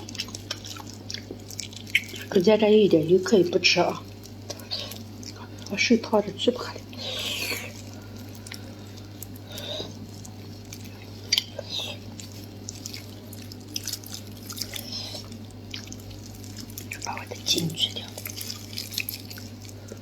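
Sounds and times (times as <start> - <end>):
person chewing: 0.0 - 2.4, 4.0 - 5.8, 6.7 - 20.0
wet mouth smacks: 9.2 - 12.0.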